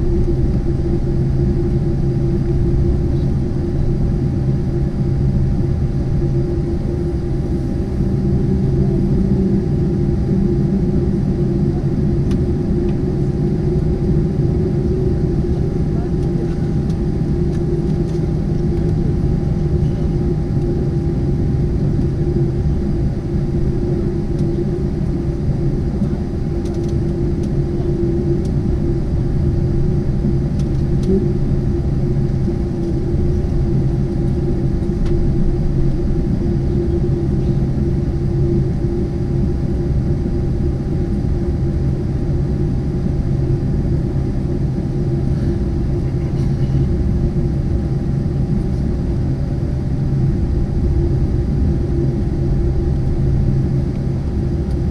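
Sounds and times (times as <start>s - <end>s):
aircraft cabin low rumble: 0.0s - 54.9s
constant hum: 0.0s - 54.9s.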